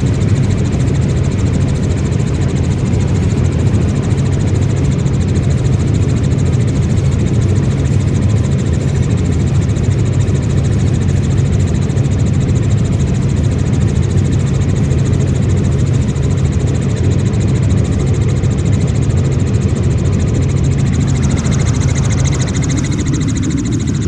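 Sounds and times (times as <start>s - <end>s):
helicopter engine and rotor: 0.0s - 24.0s.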